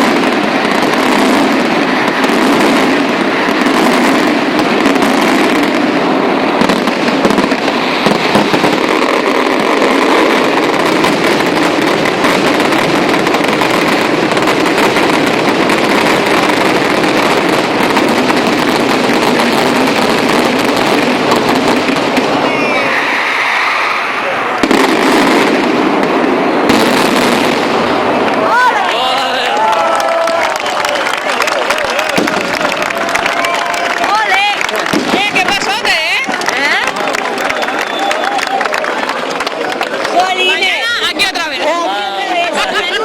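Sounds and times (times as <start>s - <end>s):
firework whistles: 0.0s - 28.3s, 37.5s - 38.7s
fireworks crackling bangs: 0.0s - 43.0s.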